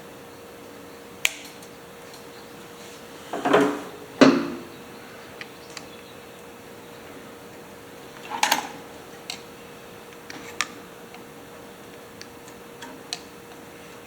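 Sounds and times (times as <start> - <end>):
faint steady hum: 0.0 - 14.0
knocks: 3.4 - 4.7
hand tools clicking and tapping: 8.2 - 9.5, 10.1 - 11.3, 11.9 - 13.6.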